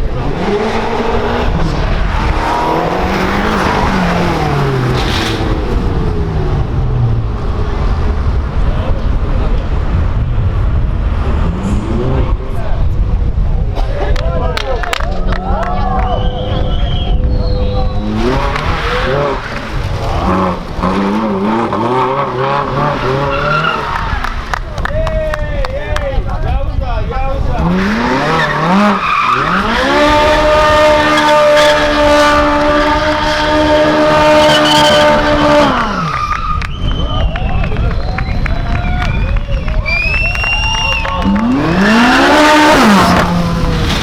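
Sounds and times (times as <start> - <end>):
low rumble of cars: 0.0 - 44.0
people talking: 8.5 - 10.2, 11.5 - 20.6, 24.6 - 28.5, 36.8 - 43.2
sports car engine revving past: 10.3 - 12.6.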